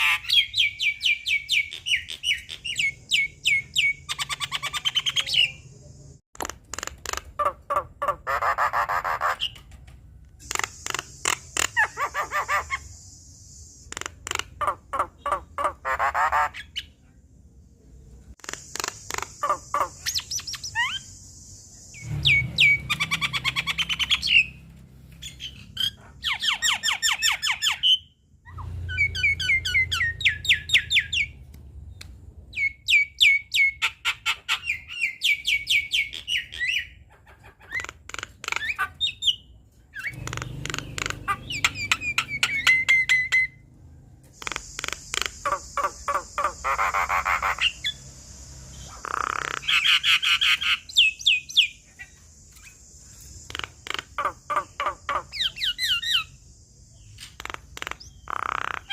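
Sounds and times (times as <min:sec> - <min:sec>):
myna singing harsh clicks and whistles: 0:10.4 - 0:15.1, 0:18.4 - 0:24.6, 0:40.0 - 0:43.6, 0:44.4 - 0:58.9.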